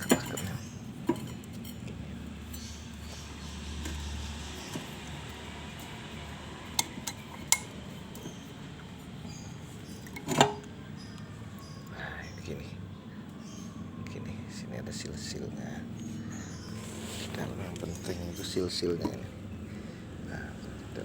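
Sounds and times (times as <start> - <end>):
metal parts clinking: 0.0 - 1.9.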